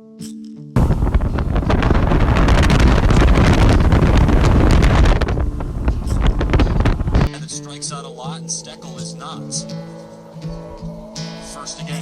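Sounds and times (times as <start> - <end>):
wind buffeting microphone: 0.8 - 7.3.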